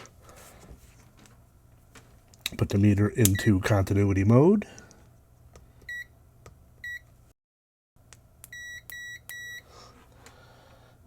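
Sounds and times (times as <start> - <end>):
multimeter short high beeps: 8.5 - 9.6.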